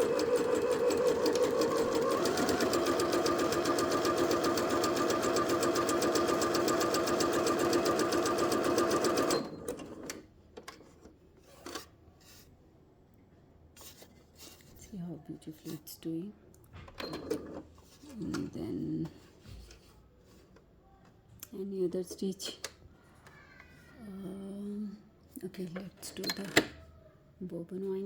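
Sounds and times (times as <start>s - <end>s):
sewing machine stitching: 0.0s - 10.2s.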